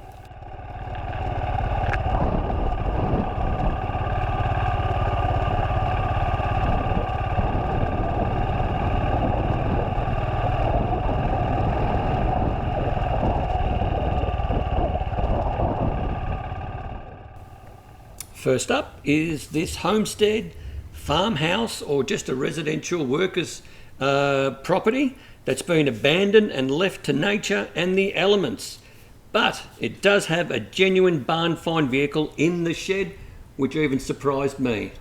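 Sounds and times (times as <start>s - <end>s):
motorcycle engine running: 0.0s - 21.8s.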